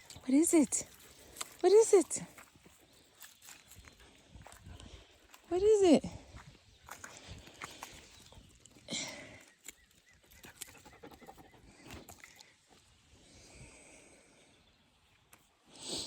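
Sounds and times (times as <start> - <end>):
footsteps through undergrowth: 0.0 - 5.5, 6.1 - 8.5.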